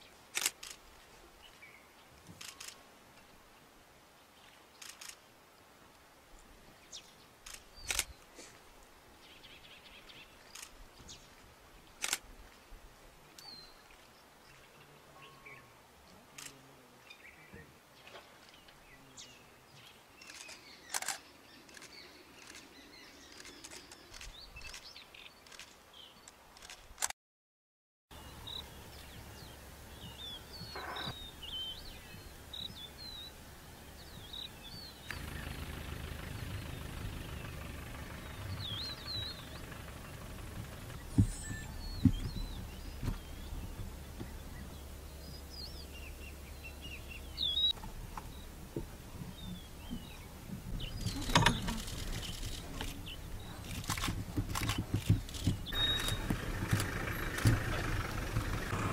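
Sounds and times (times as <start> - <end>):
sharp clicks: 7.4 - 8.1, 12.0 - 12.2, 20.3 - 22.7, 50.9 - 58.9
bird chirps: 28.2 - 48.6, 49.2 - 58.9
low engine rumble: 28.2 - 58.9.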